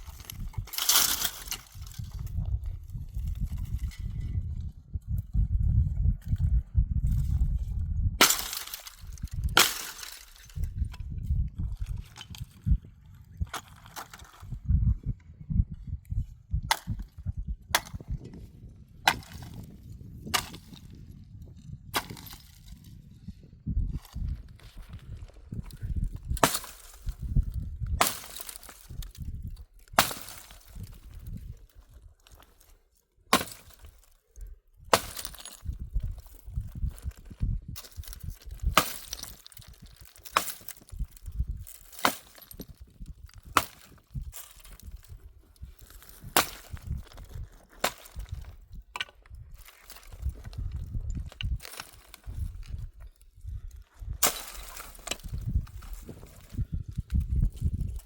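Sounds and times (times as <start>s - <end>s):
axe chopping firewood: 0.2s - 2.1s, 8.2s - 10.6s, 16.7s - 18.2s, 19.0s - 21.0s, 21.9s - 22.7s, 25.6s - 31.4s, 33.3s - 34.1s, 34.9s - 37.2s, 37.8s - 45.2s, 45.8s - 50.6s, 54.0s - 57.9s.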